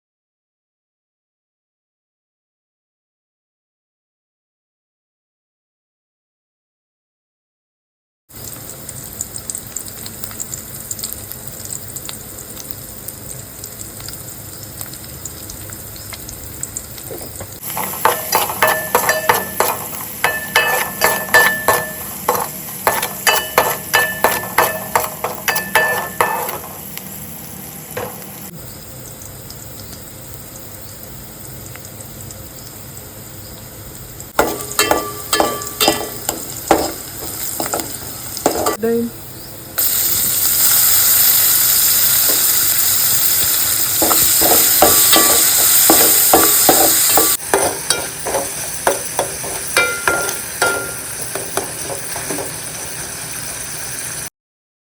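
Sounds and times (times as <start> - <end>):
food sizzling in a pan: 8.3 - 54.3
metal utensil scraping a pan: 17.6 - 27.0, 28.0 - 28.3, 34.4 - 38.8, 42.2 - 53.0.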